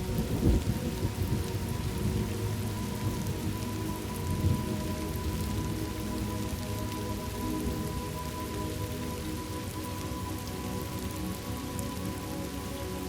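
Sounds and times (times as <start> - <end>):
thunder rumbling: 0.0 - 5.5
faint steady tones: 0.0 - 13.0
rain hissing: 0.0 - 13.0.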